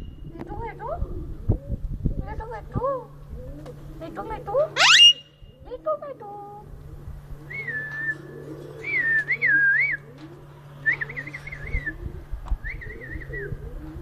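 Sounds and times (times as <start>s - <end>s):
lower gliding bird calls: 3.4s - 5.8s
parrot whistling warbling notes: 4.8s - 5.4s.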